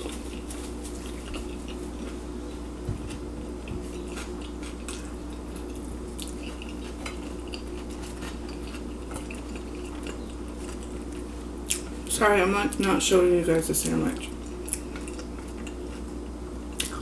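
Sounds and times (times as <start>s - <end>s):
steady low hum: 0.0s - 17.0s
mouth sounds of eating: 16.7s - 17.0s.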